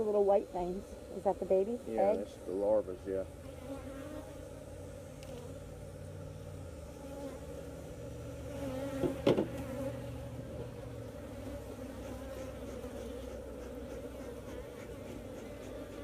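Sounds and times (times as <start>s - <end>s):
bees buzzing: 0.0s - 16.0s
sharp knock: 9.0s - 9.5s.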